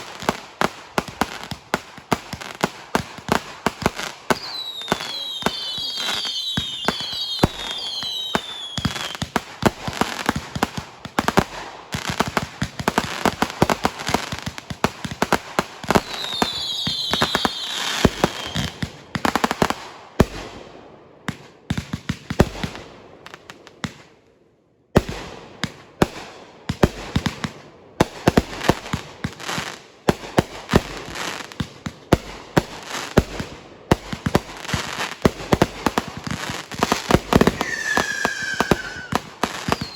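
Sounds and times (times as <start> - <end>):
fireworks cracking and popping: 0.0 - 20.4, 25.0 - 39.9
whistling firework shells: 4.3 - 9.2, 16.0 - 18.8, 37.2 - 39.9.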